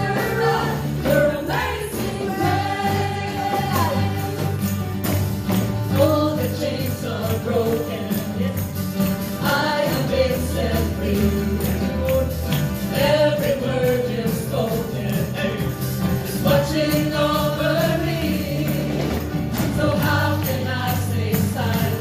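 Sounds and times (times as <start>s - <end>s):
voices singing worship song: 0.0s - 4.8s, 5.8s - 22.0s
band with bass and beat: 0.0s - 22.0s
tambourine jingling: 0.0s - 22.0s.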